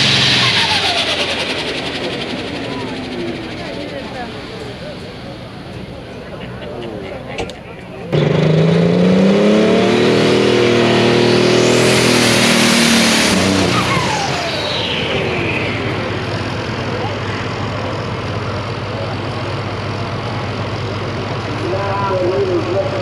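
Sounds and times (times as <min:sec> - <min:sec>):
turbo whine sliding down: 0:00.0 - 0:06.2, 0:09.1 - 0:18.3
tractor engine running at full power: 0:00.0 - 0:23.0.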